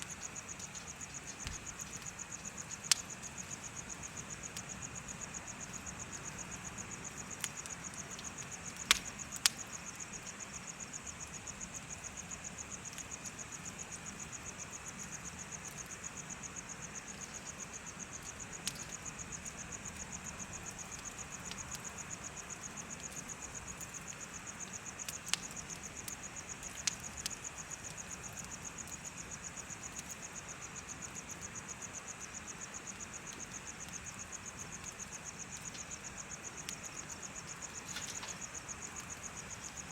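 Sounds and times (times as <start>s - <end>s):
sharp fire pops: 0.0s - 4.9s, 7.3s - 10.4s, 18.2s - 29.0s, 33.3s - 39.9s
bonfire crackling: 0.0s - 39.9s
crickets chirping: 0.0s - 39.9s.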